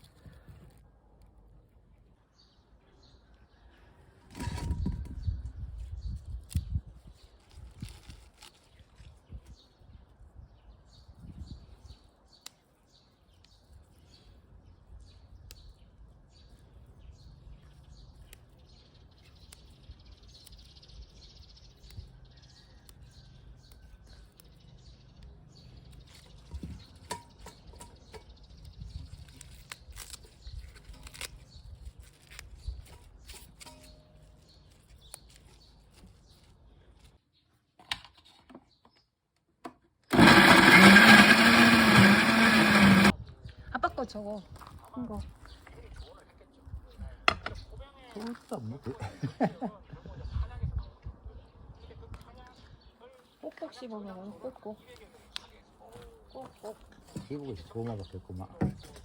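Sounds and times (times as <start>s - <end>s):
electric blender running: 40.1s - 43.1s.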